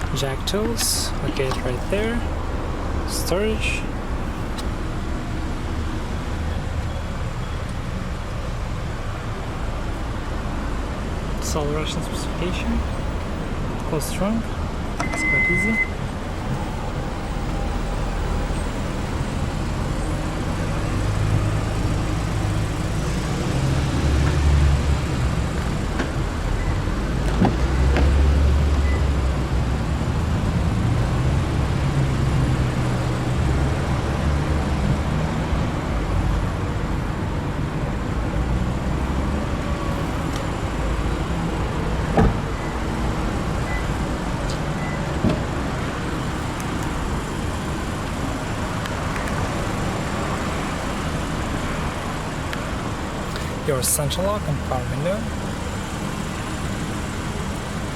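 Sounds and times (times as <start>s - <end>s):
motor vehicle rumble: 0.0s - 57.9s.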